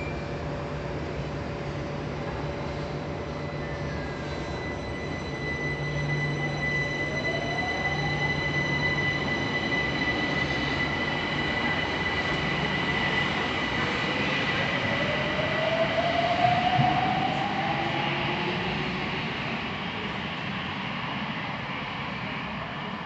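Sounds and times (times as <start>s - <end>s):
steady high-pitched tone: 3.1s - 19.2s.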